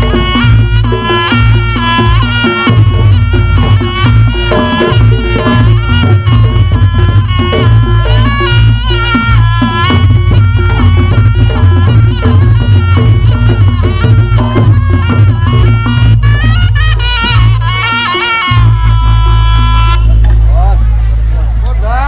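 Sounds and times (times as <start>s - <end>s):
drums beating: 0.0s - 22.0s
shrill shawm melody: 0.0s - 22.0s.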